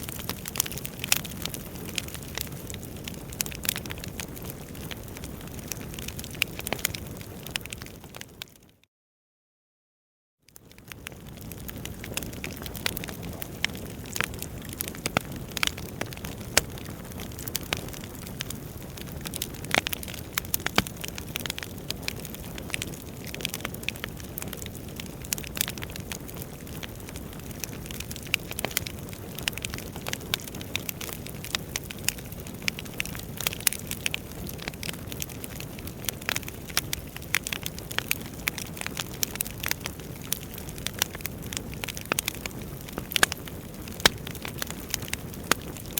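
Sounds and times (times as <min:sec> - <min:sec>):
wood fire crackling: 0:00.0 - 0:08.5, 0:10.5 - 0:45.9.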